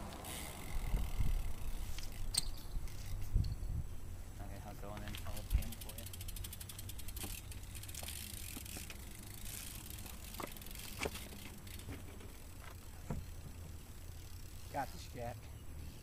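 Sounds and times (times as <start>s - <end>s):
bike hub ratcheting clicks: 0.1s - 3.7s, 4.9s - 14.9s
bike knocks: 9.8s - 13.8s.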